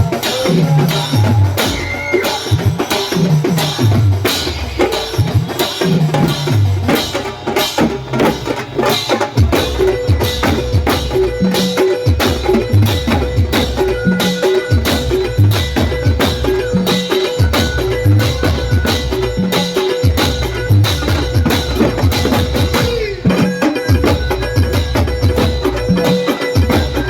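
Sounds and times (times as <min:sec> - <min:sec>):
fast dense percussion: 0:00.0 - 0:27.0.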